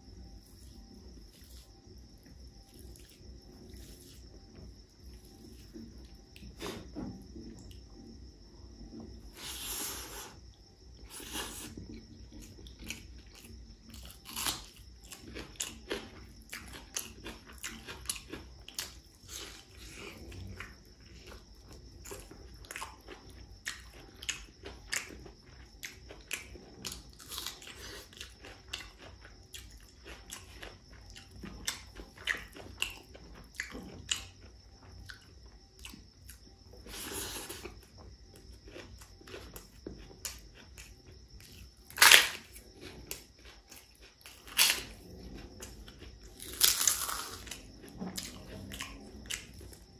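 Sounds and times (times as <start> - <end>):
man chewing with wet mouth clicks: 11.2 - 36.4, 37.0 - 49.9.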